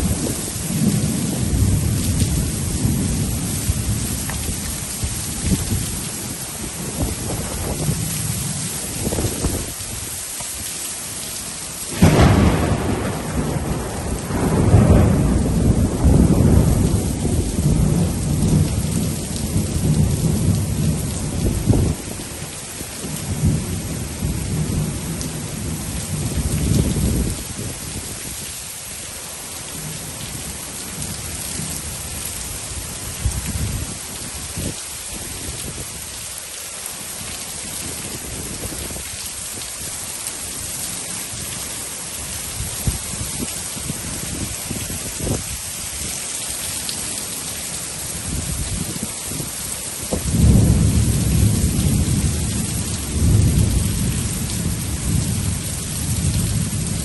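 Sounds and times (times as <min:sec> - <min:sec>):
low rumble of thunder: 0:00.0 - 0:09.8, 0:11.9 - 0:22.2, 0:23.0 - 0:28.4, 0:31.0 - 0:34.8, 0:48.1 - 0:57.0
steady rain falling: 0:00.0 - 0:57.0.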